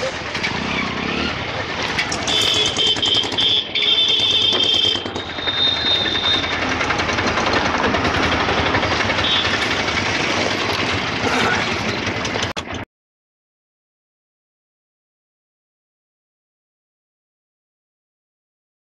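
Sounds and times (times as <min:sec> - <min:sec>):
high wheel squeal: 0:00.0 - 0:12.4
train wheels clattering: 0:01.8 - 0:12.8.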